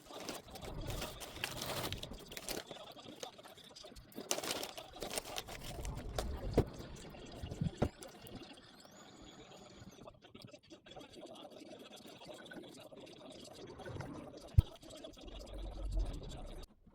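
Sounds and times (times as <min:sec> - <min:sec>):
liquid pouring and sloshing: 0:04.1 - 0:08.4.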